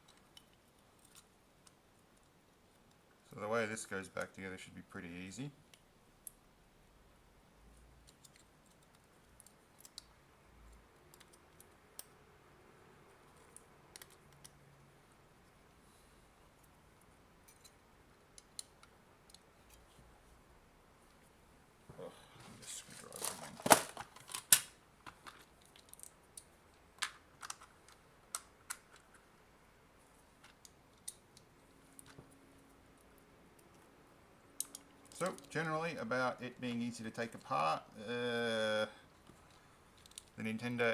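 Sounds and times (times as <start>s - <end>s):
faint clicks of small parts: 0.0s - 3.4s, 5.6s - 6.5s, 7.7s - 12.3s, 13.0s - 20.1s, 22.8s - 29.4s, 30.1s - 35.6s, 39.0s - 40.5s.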